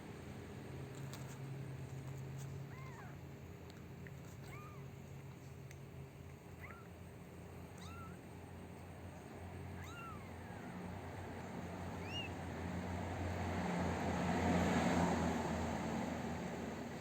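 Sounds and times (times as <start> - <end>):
steady low hum: 0.0 - 17.0
kittens mewing: 2.6 - 3.2, 4.2 - 5.4, 6.3 - 12.8.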